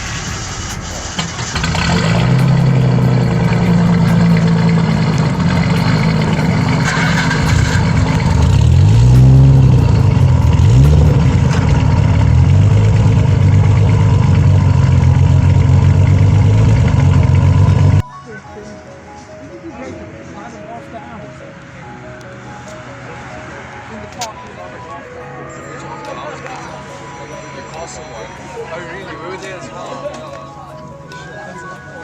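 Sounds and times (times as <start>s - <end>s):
car engine idling: 0.0s - 18.0s
engine throttle blips: 0.0s - 18.0s.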